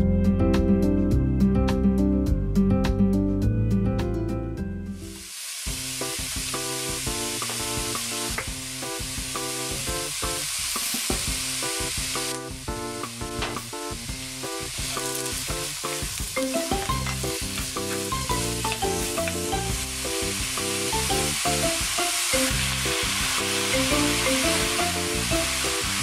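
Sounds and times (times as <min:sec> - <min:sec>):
background music: 0:00.0 - 0:05.2, 0:11.4 - 0:26.0
mushrooms sizzling in a frying pan: 0:05.0 - 0:26.0.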